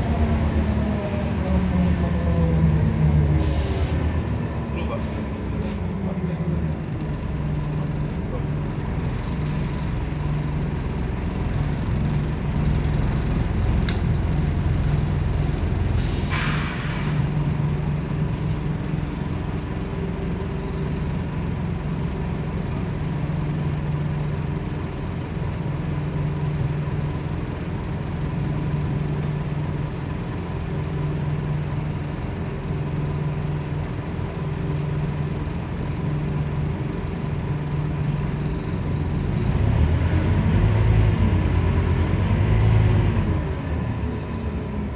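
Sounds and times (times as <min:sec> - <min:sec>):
bus diesel engine humming: 0:00.0 - 0:44.9
compressed air hiss: 0:16.0 - 0:17.3.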